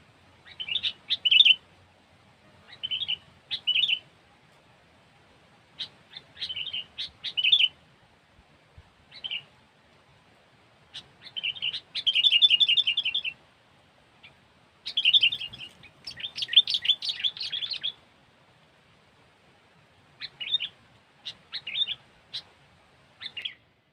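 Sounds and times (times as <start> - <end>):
bird chattering chirps: 5.8 - 7.7, 10.9 - 13.4, 14.8 - 18.0, 20.2 - 22.5, 23.2 - 23.6.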